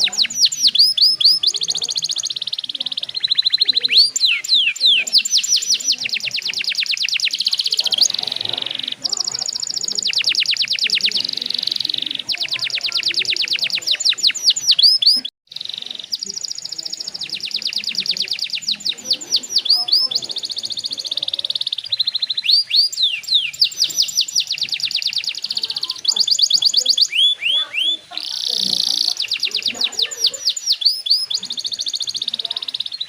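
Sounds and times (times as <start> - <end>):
canary singing trills: 0.0 - 33.0.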